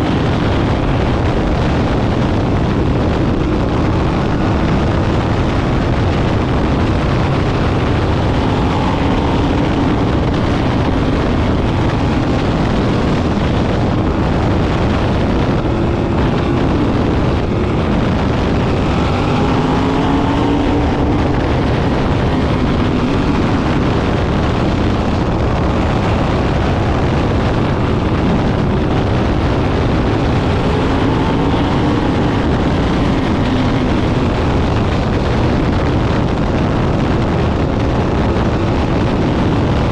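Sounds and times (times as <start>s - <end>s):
race car engines passing: 0.0s - 39.9s.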